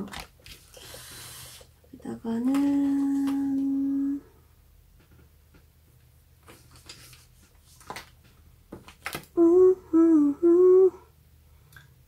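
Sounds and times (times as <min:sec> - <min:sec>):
woman humming: 0:02.4 - 0:04.4, 0:09.4 - 0:11.2.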